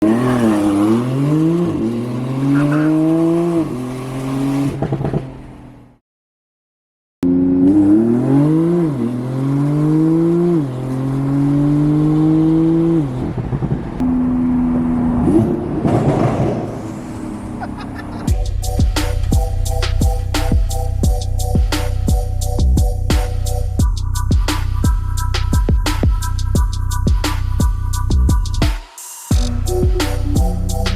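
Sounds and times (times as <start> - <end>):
sports car accelerating hard: 0.0 - 5.7, 7.2 - 18.3
music with a beat: 18.3 - 30.9.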